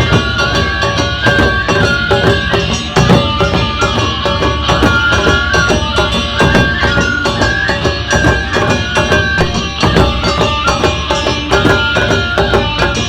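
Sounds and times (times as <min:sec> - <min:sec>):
fast drumming on flat drums: 0:00.0 - 0:13.0
held melody notes: 0:00.0 - 0:13.0.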